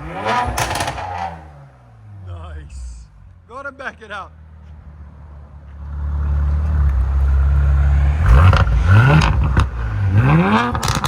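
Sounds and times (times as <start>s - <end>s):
exhaust pops: 0.0s - 1.2s, 8.2s - 11.0s
car engine revving: 0.0s - 3.4s, 5.7s - 11.0s.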